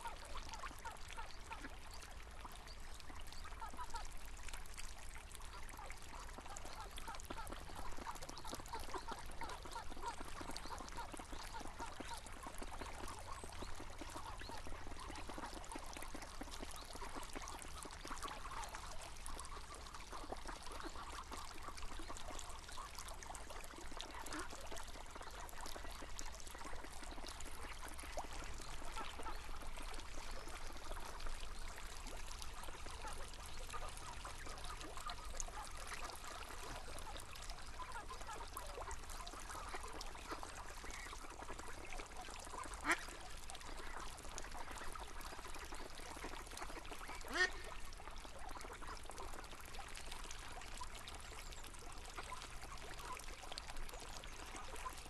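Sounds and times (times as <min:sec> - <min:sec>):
river water running: 0:00.0 - 0:55.0
ducks quacking: 0:42.5 - 0:43.2, 0:46.7 - 0:47.7.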